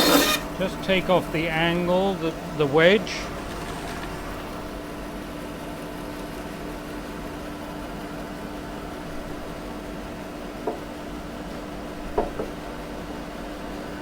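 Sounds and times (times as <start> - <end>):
electric power saw humming: 0.0 - 7.3.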